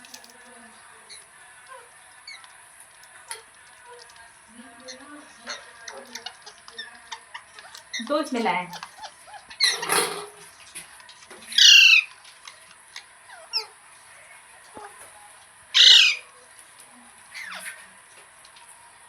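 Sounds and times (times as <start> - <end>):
parrot squawking: 4.8 - 10.2, 11.5 - 12.6, 13.3 - 13.8, 15.7 - 16.3, 17.3 - 17.9.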